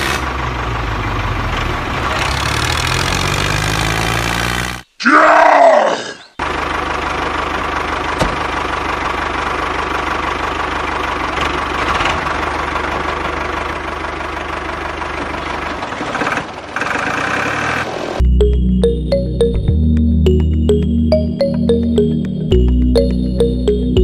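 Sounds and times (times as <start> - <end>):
small engine knocking idle: 6.4 - 17.7.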